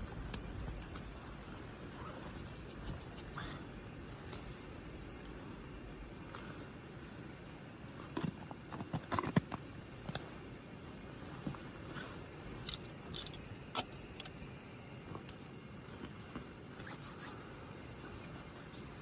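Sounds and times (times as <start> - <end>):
low background rumble: 0.0 - 8.7.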